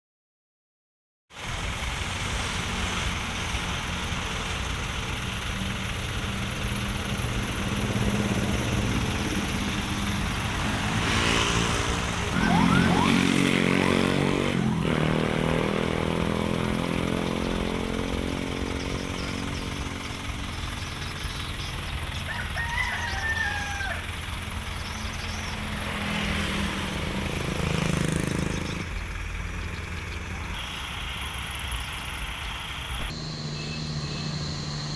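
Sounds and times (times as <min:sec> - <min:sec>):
heavy truck engines running: 0:01.4 - 0:34.9
rooster crowing: 0:12.3 - 0:14.0, 0:22.2 - 0:24.1.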